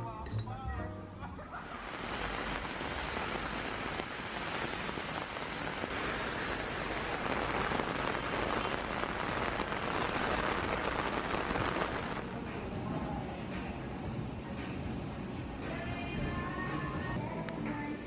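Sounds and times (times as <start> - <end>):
heavy rain on pavement: 1.6 - 12.4.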